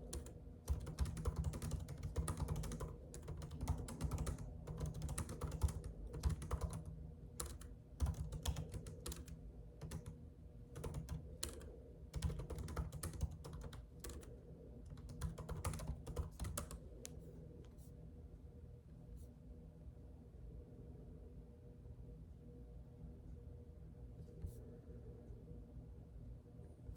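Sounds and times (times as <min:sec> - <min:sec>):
typing on computer keyboard: 0:00.0 - 0:16.8
low steady hum: 0:00.0 - 0:26.9.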